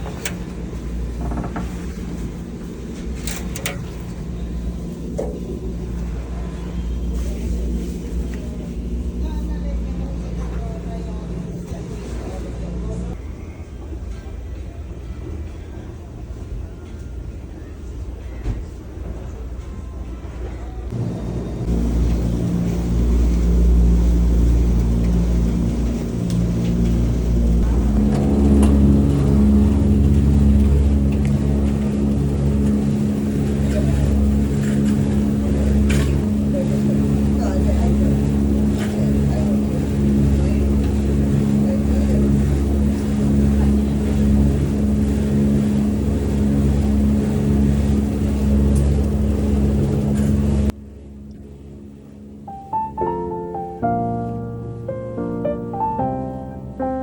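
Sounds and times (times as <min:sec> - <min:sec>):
motor humming: 0:00.0 - 0:11.8, 0:20.9 - 0:52.6.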